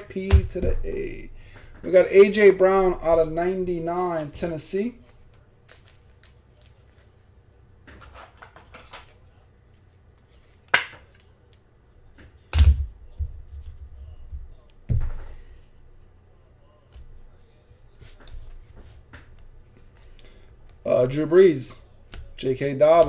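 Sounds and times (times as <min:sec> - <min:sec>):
cards rustling: 0:03.3 - 0:11.6.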